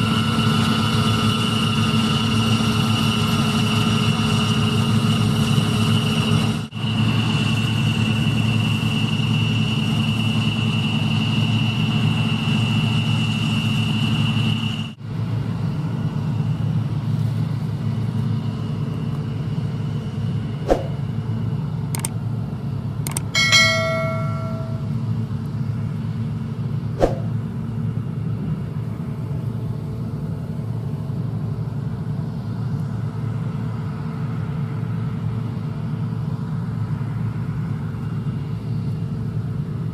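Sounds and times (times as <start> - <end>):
diesel machinery engines running: 0.0 - 39.9
sharp clicks: 22.0 - 22.2, 23.0 - 23.3
short ringing tone: 23.1 - 25.1
high steady whine: 23.1 - 25.3.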